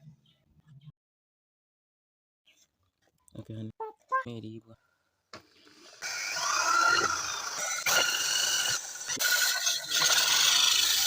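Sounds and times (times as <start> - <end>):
sanding disc grinding a blade: 5.8 - 11.0.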